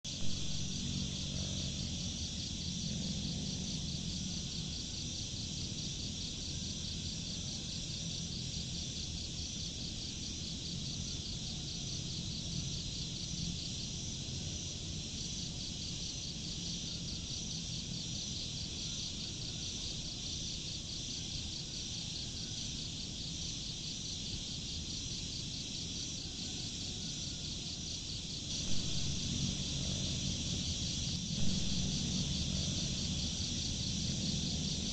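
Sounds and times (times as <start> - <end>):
low background rumble: 0.1 - 6.2, 28.4 - 34.9
insects chirping: 0.1 - 34.9.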